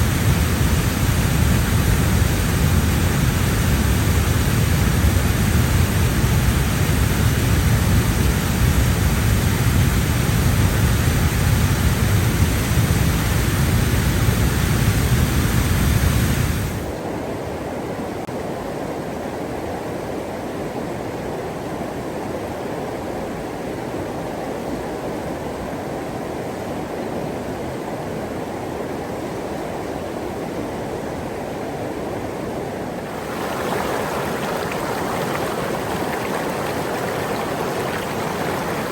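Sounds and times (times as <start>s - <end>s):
rushing water: 32.9s - 38.9s.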